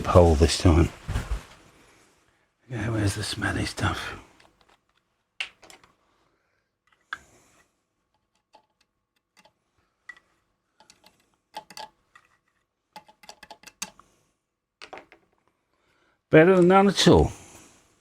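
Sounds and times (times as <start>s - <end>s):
small tools clicking and tapping: 8.1s - 14.1s.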